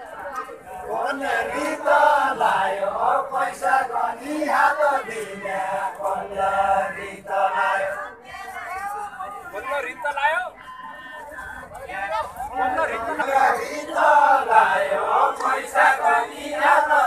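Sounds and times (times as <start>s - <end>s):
men singing folk song together: 0.7s - 8.1s, 12.5s - 17.0s.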